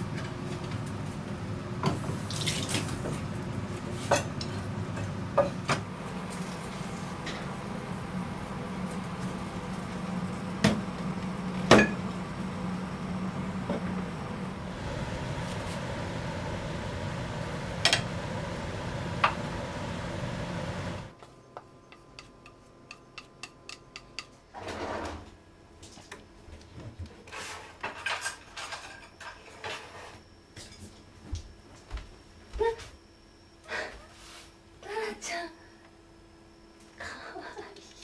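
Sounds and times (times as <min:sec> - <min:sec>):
steady rushing noise: 0:14.6 - 0:21.1.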